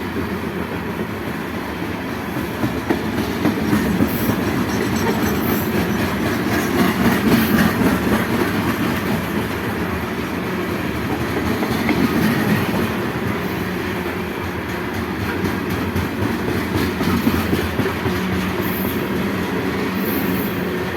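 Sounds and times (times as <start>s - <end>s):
train rumbling: 0.0s - 20.9s.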